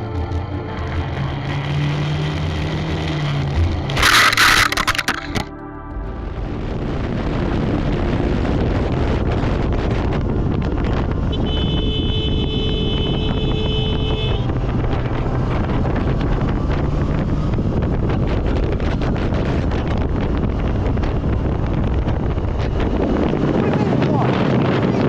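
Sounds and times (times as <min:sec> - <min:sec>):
vehicle running: 0:00.0 - 0:25.0
wind rushing over microphone: 0:00.0 - 0:25.0
steady high tone: 0:03.8 - 0:09.6.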